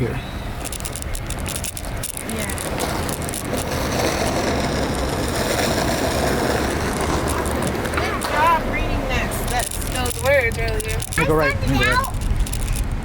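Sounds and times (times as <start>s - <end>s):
car road and engine noise: 0.0s - 13.0s
light rattling clicks: 9.4s - 12.9s.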